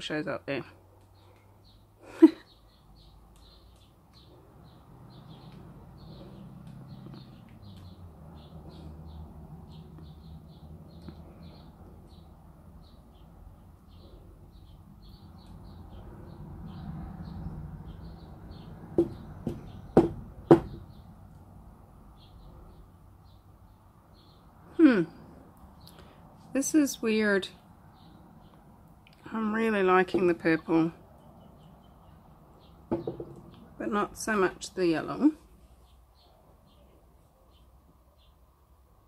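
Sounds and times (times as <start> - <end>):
faint birds chirping: 0.0 - 39.0
sharp knocks: 19.0 - 21.0, 32.9 - 33.5.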